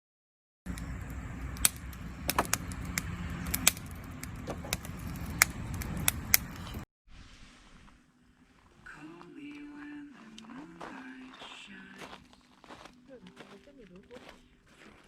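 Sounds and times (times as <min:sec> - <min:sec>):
burning wood popping: 0:00.7 - 0:06.8
low steady rumble: 0:00.7 - 0:06.8
wood fire crackling: 0:00.7 - 0:06.8.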